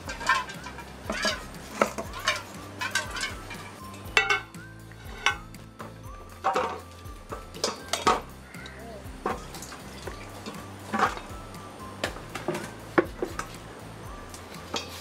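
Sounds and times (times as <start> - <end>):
blade clinking on metal bowl: 0.0 - 5.5, 7.5 - 11.3.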